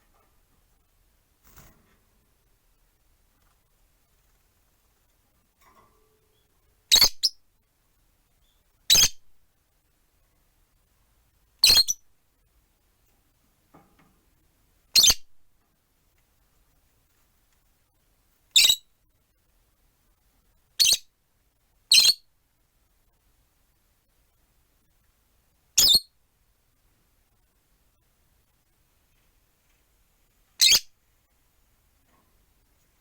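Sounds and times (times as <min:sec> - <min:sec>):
lovebirds shrill calls: 0:18.6 - 0:18.8, 0:30.6 - 0:30.9.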